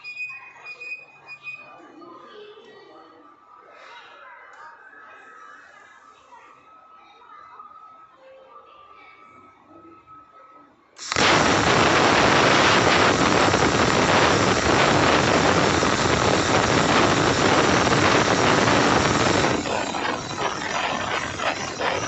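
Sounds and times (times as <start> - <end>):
plasma cutter hissing: 11.0 - 22.0.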